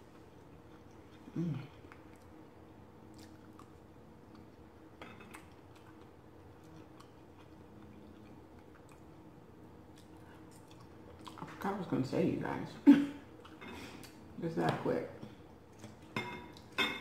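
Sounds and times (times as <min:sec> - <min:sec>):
person chewing food: 0:00.0 - 0:11.6, 0:13.3 - 0:14.2, 0:15.2 - 0:16.8
person humming: 0:01.3 - 0:01.8.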